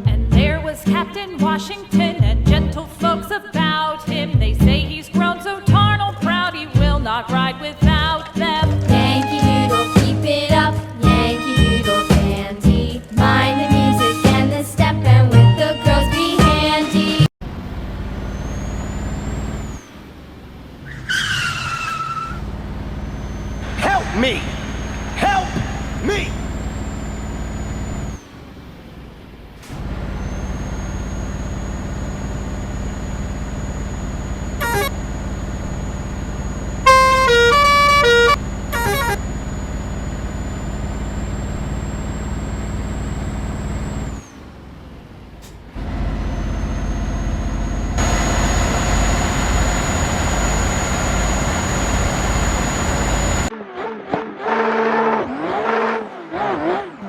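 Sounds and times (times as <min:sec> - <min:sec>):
vehicle engine with high whine: 0:07.8 - 0:57.0
horn blasts: 0:08.9 - 0:12.6, 0:13.2 - 0:17.3, 0:34.6 - 0:34.9, 0:36.8 - 0:39.2
warbling pitched sounds: 0:34.6 - 0:44.2.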